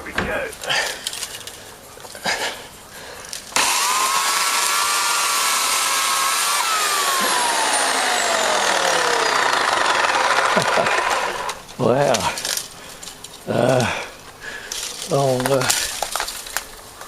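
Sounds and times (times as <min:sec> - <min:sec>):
electric chainsaw cutting branch: 0:03.5 - 0:11.6.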